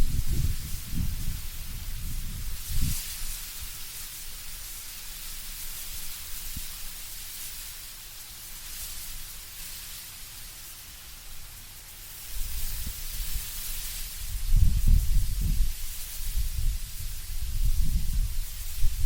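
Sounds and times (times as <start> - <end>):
low rumble of wind gust: 0.0 - 4.6, 12.3 - 19.0
leaves rustling in wind: 0.0 - 19.0.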